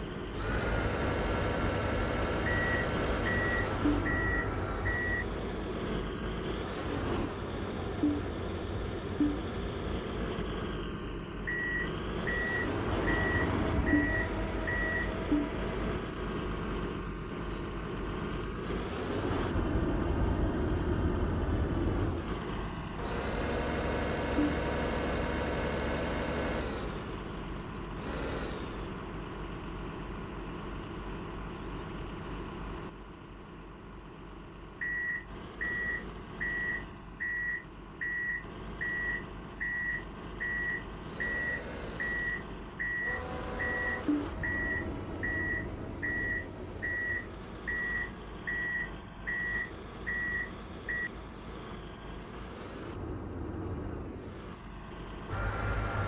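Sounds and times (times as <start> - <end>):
truck diesel engine revving: 0.0 - 32.9, 34.3 - 56.0
reversing alarm beeping: 2.4 - 5.3, 8.0 - 8.4, 9.2 - 9.4, 11.5 - 15.6, 24.3 - 24.8, 34.8 - 51.1.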